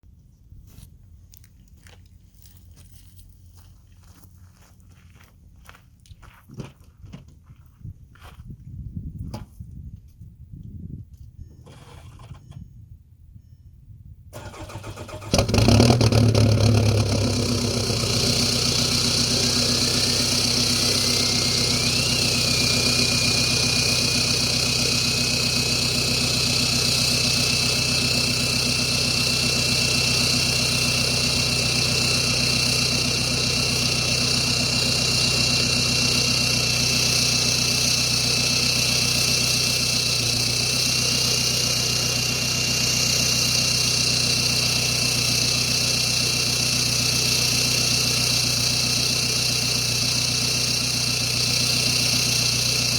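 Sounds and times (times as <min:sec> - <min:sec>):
diesel engine starting and idling: 0:11.5 - 0:12.6, 0:14.3 - 0:52.9.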